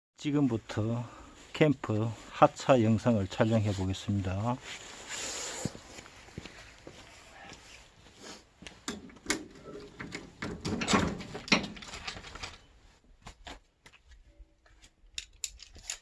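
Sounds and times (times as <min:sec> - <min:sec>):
sharp clicks and knocks: 0:08.8 - 0:12.6.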